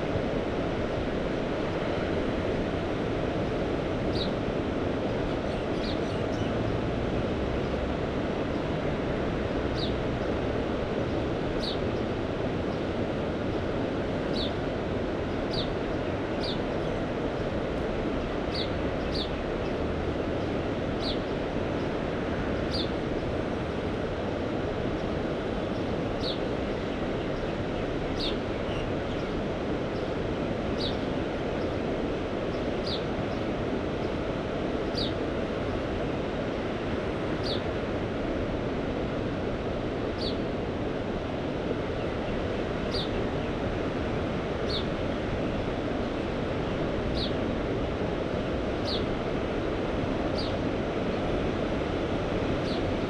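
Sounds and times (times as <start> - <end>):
sea surf: 0.0 - 53.0
wind: 0.0 - 53.0
bird chirping: 42.9 - 43.1, 47.2 - 47.4.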